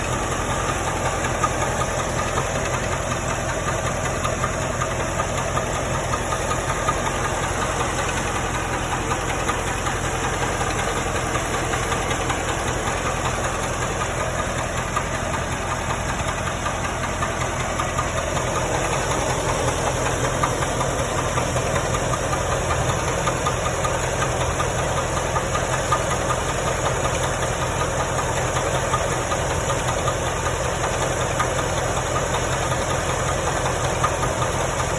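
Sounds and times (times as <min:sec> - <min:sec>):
car engine running: 0:00.0 - 0:34.9
engine knocking: 0:00.0 - 0:34.9.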